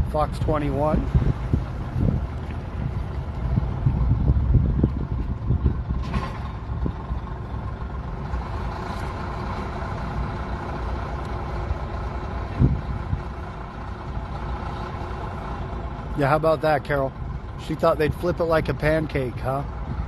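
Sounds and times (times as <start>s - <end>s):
heavy diesel equipment running: 0.0s - 20.0s
wind buffeting microphone: 0.0s - 20.0s.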